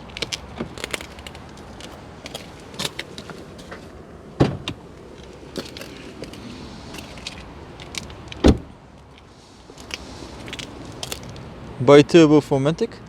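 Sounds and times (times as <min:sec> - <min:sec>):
car bonnet thumps: 0:04.4 - 0:04.8.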